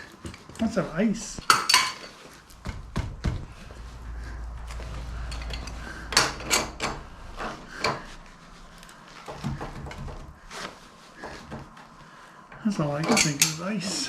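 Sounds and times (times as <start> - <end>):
metal clanks and clicks: 4.7 - 8.1, 12.5 - 14.0.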